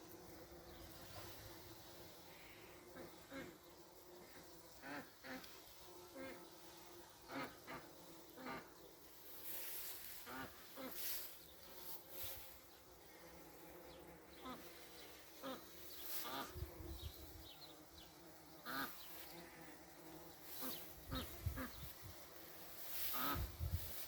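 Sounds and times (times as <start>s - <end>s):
bumblebee buzzing: 0.0s - 24.0s
short bird calls: 20.5s - 21.9s.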